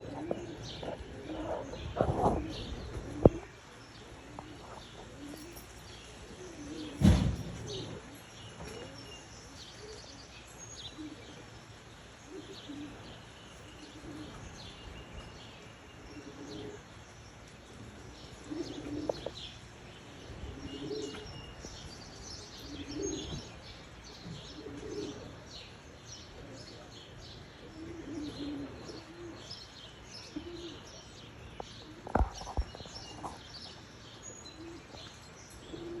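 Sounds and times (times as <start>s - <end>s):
pigeons cooing: 0.0s - 36.0s
sharp thump: 7.0s - 7.6s.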